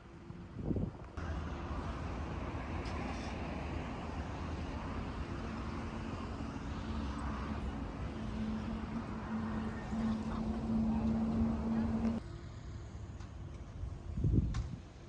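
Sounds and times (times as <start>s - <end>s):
road traffic rumble: 1.1s - 13.4s.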